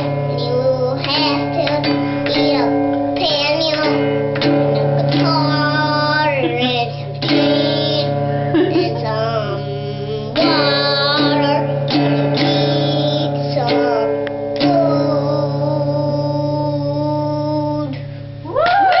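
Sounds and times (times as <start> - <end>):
boy singing long notes: 0.0 - 18.0
guitar accompaniment: 0.0 - 19.0.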